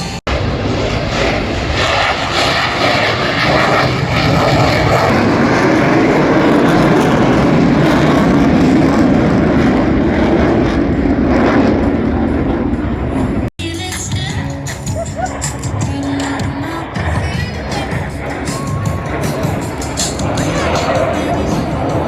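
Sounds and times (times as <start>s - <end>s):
military jet flying past: 0.0s - 22.0s.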